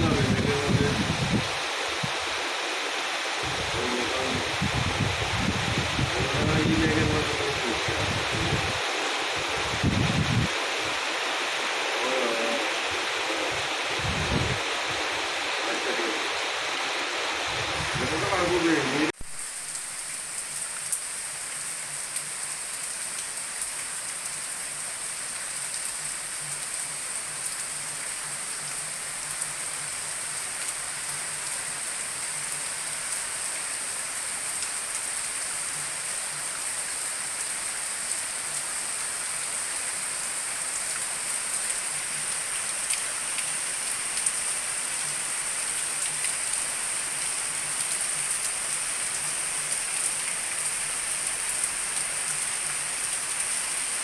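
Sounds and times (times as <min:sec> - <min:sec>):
heavy rain hissing: 0:00.0 - 0:54.0
raindrop ticks: 0:41.6 - 0:53.5.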